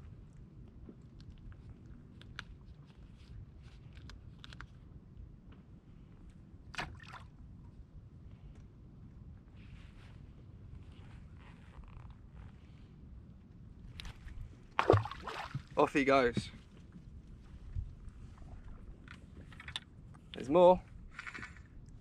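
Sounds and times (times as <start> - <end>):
water lapping against boat hull: 13.9 - 19.6.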